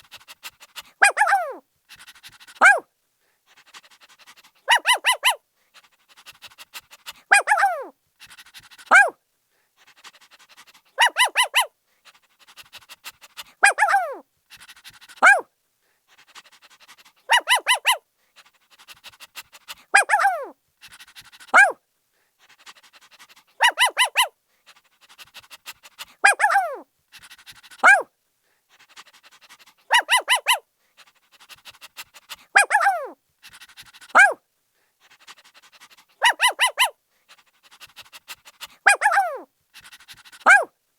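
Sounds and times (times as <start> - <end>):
puppy barking and yelping: 0.0 - 2.9, 3.7 - 9.2, 10.4 - 11.7, 12.5 - 15.5, 17.0 - 18.0, 18.8 - 21.8, 22.7 - 28.1, 29.0 - 30.7, 31.3 - 34.4, 35.2 - 40.7.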